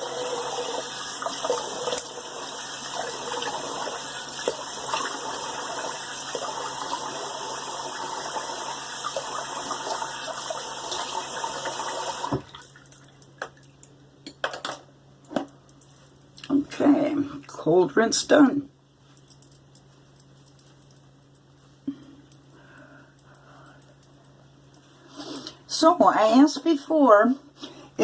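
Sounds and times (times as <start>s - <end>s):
tap water running into sink: 0.0s - 12.8s.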